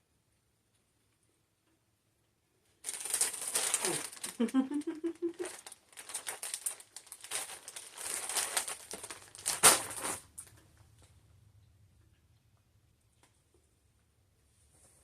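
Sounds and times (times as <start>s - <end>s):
plastic packaging crinkling: 2.8s - 10.6s.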